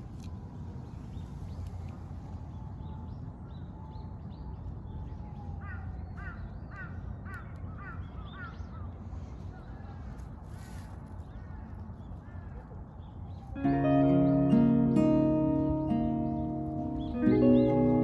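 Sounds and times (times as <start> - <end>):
faint higher bird calls: 13.5 - 18.0
bird harsh calls: 14.5 - 18.0.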